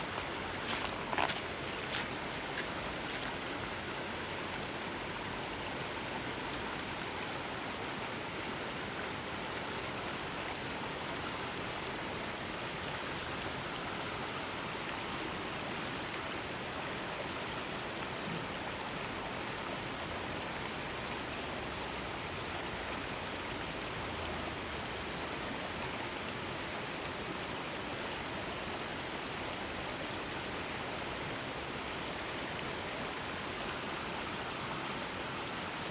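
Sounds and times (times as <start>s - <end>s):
river water rushing: 0.0s - 5.5s, 29.0s - 35.9s.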